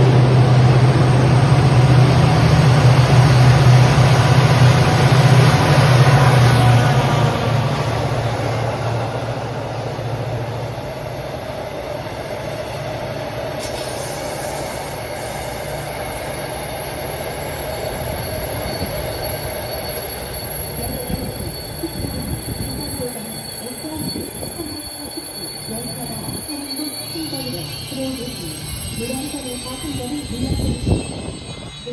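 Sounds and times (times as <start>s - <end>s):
train wheels rumbling on rails: 0.0s - 31.9s
thin high steady tones: 13.7s - 31.9s.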